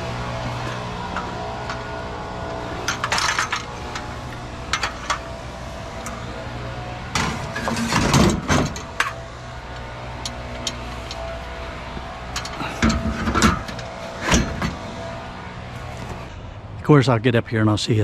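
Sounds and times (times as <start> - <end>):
truck engine idling: 0.0 - 18.0
sharp knocks and rattles: 2.6 - 5.6, 7.1 - 11.3.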